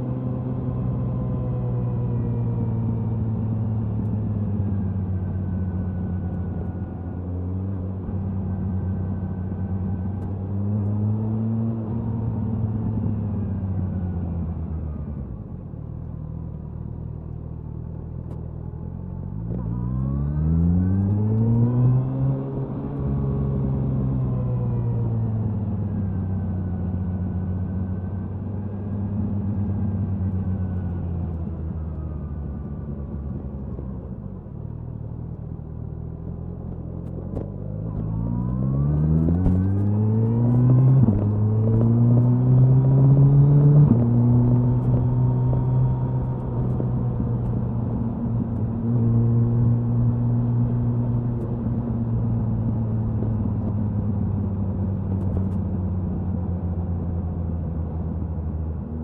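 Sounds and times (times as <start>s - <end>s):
motorcycle exhaust accelerating: 34.5s - 59.0s.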